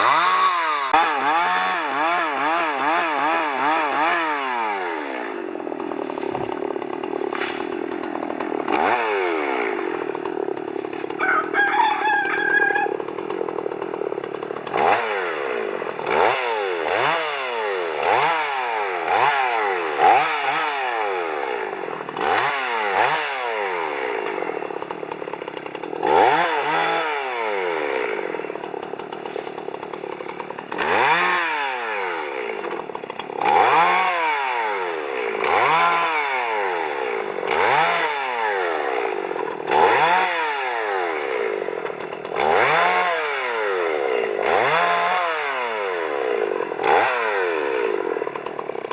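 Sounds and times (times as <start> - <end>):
chainsaw cutting wood: 0.0 - 48.9
rooster crowing: 11.2 - 13.1.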